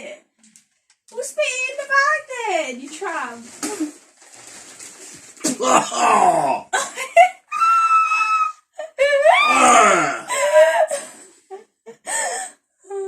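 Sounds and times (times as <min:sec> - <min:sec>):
person screaming and wailing: 0:05.6 - 0:06.6, 0:09.2 - 0:10.8
person gasping: 0:09.5 - 0:11.3.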